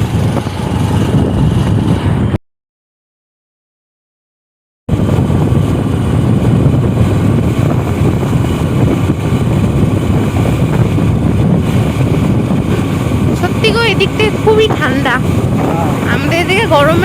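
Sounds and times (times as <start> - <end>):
motorbike engine: 0.0 - 2.4, 4.9 - 17.0
road noise: 0.0 - 2.4, 4.9 - 17.0
wind buffeting microphone: 0.0 - 2.4, 4.9 - 17.0.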